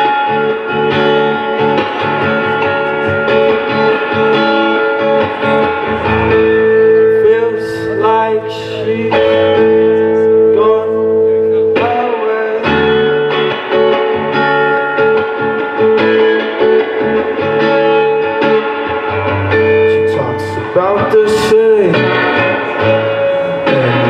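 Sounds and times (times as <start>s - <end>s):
person singing: 0.0s - 14.0s, 19.9s - 24.0s
guitar chords: 0.0s - 24.0s.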